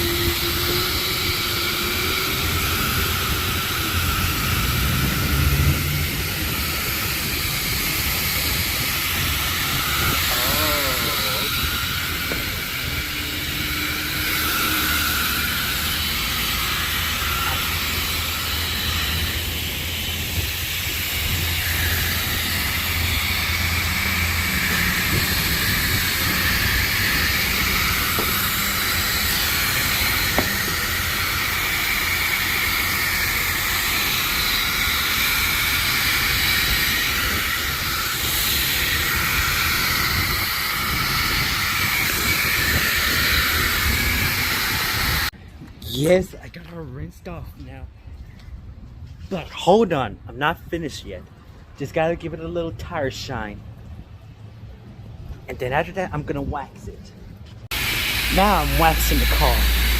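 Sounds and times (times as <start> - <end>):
pressure washer spraying car: 0.0 - 45.3, 57.7 - 59.9.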